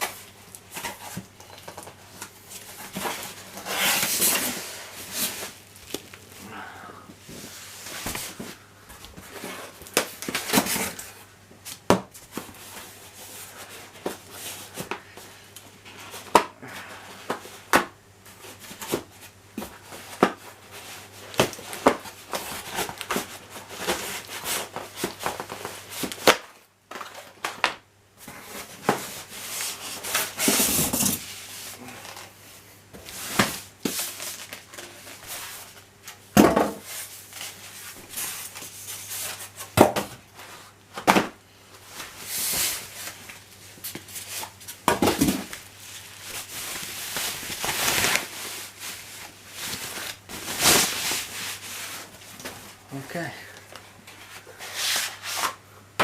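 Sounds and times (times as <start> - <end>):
packaging rustle: 41.9 - 52.7.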